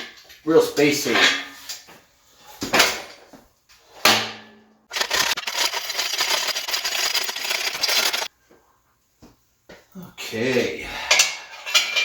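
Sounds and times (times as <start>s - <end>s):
lifting chain rattling: 4.9s - 8.3s.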